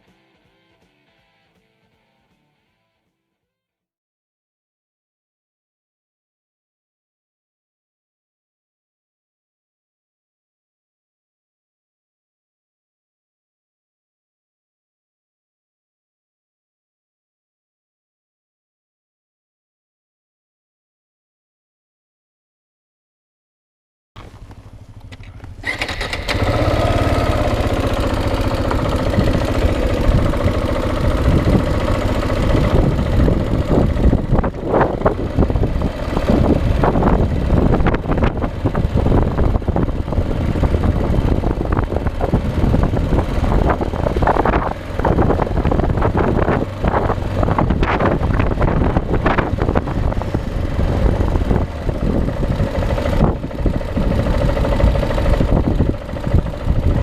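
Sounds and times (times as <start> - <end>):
motorcycle engine starting and running: 24.2 - 57.0.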